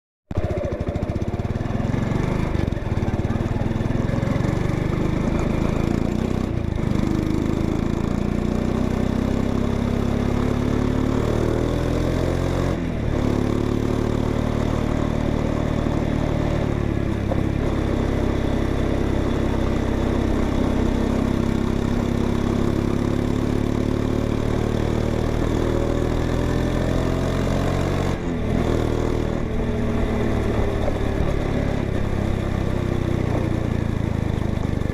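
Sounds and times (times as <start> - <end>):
motorcycle engine exhaust: 0.3 - 10.8.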